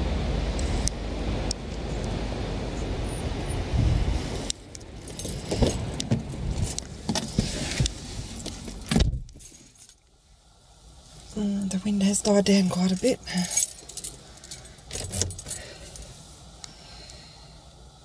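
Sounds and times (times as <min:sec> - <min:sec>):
wind buffeting microphone: 0:00.0 - 0:04.5
car door shutting: 0:05.2 - 0:09.5, 0:14.9 - 0:15.6.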